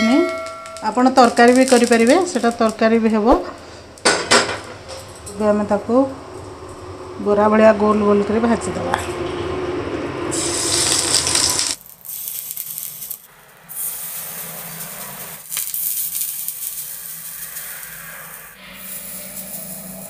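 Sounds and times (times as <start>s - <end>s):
patties sizzling in oil: 0.9s - 2.9s, 10.4s - 20.0s.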